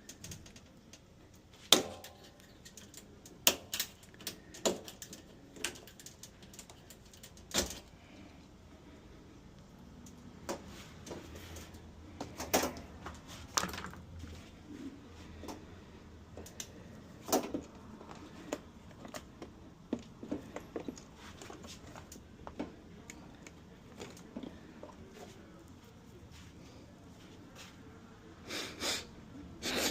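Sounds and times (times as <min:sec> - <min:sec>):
hard objects clicking and knocking: 0:00.0 - 0:07.9, 0:16.4 - 0:25.0.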